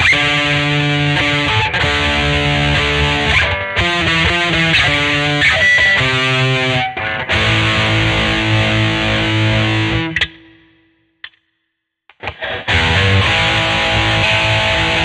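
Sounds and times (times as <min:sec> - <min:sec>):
electric guitar notes: 0:00.0 - 0:10.7, 0:12.2 - 0:15.0
held guitar chord: 0:12.4 - 0:15.0.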